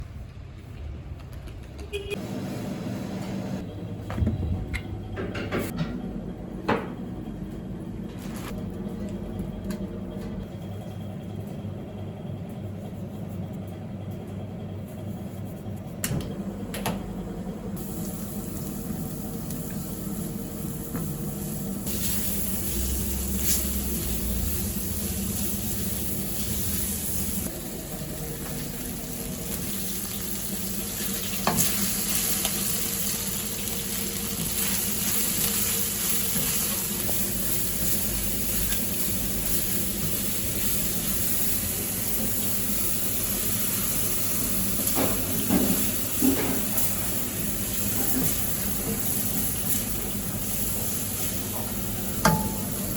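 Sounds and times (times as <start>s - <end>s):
food sizzling: 17.8s - 52.9s.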